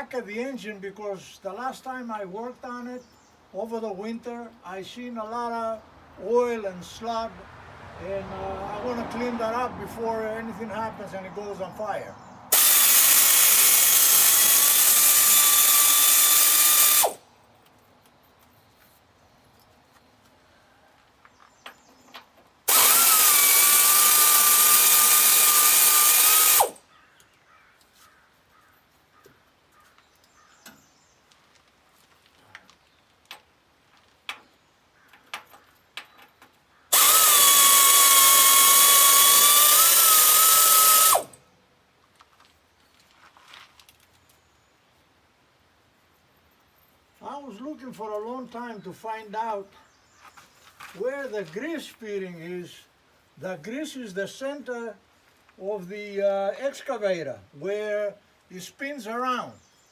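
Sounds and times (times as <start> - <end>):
power drill whining: 12.5 - 17.2, 22.7 - 26.8, 36.9 - 41.4.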